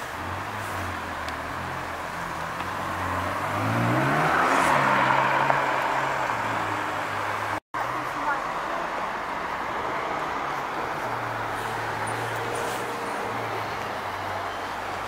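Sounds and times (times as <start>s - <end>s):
car engine accelerating: 0.0s - 7.6s.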